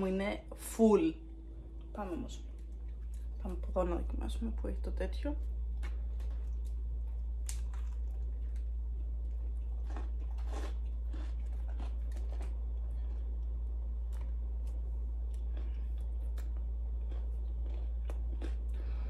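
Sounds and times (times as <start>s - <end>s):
steady low hum: 0.0s - 19.0s
biting and chewing food: 2.4s - 4.0s, 5.4s - 19.0s.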